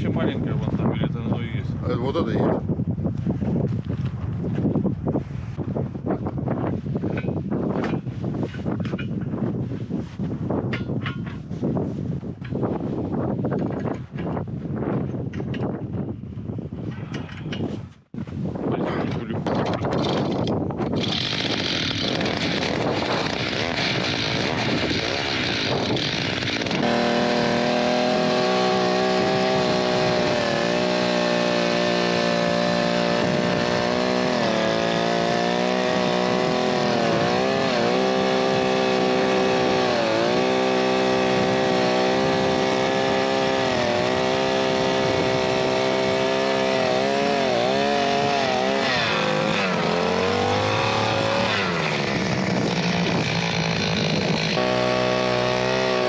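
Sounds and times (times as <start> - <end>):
ice auger engine running: 20.8 - 56.0.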